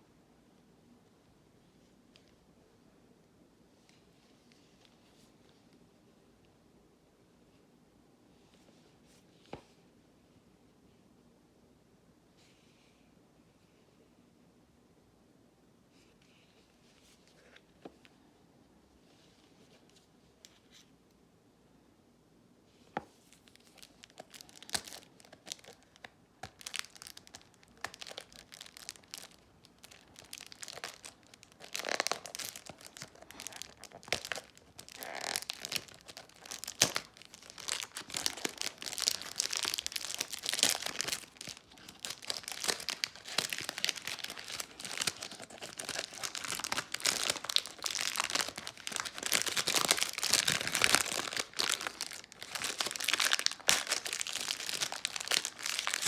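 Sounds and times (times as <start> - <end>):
wrapping crinkling and tearing: 23.3 - 56.0.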